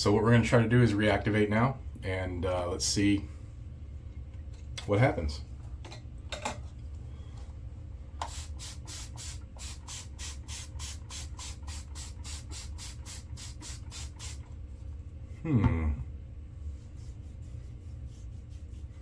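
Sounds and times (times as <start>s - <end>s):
wet hands rubbing face: 16.7s - 19.0s.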